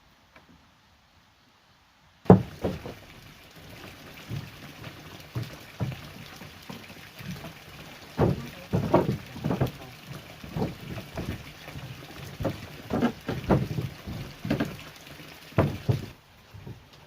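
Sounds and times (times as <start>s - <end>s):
steady background hiss: 0.0s - 17.0s
loud knock: 2.3s - 3.0s
irregular knocks and clunks: 2.3s - 16.9s.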